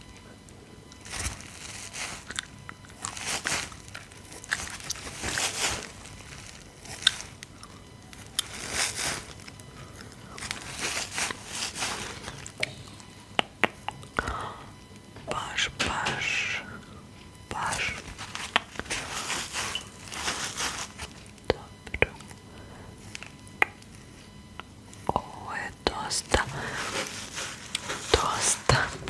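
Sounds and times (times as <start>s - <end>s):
sharp crackling clicks: 2.3s - 8.6s, 23.1s - 25.3s.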